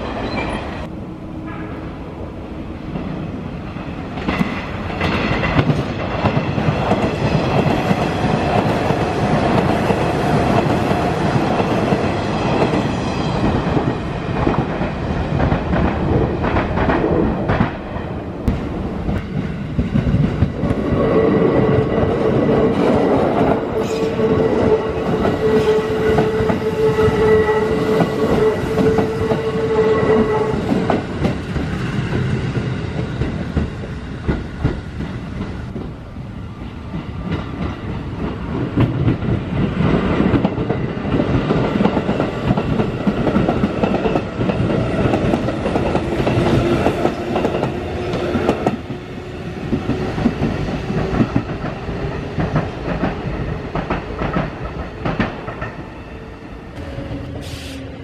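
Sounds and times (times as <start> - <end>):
train wheels clattering: 36.6 - 56.0.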